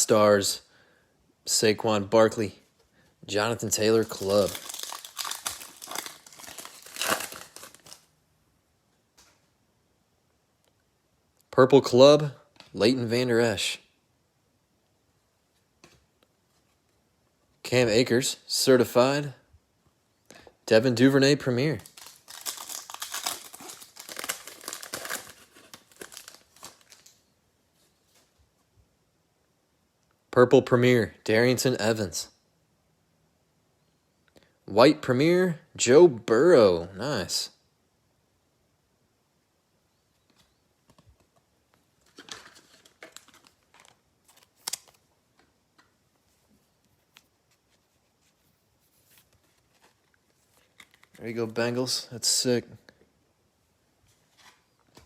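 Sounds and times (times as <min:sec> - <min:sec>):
trading cards rustling and clicking: 0:03.7 - 0:08.0, 0:21.8 - 0:27.2, 0:42.0 - 0:45.5, 0:49.0 - 0:51.4
foil wrapper crinkling and tearing: 0:03.7 - 0:08.1, 0:21.8 - 0:27.2, 0:42.0 - 0:45.0.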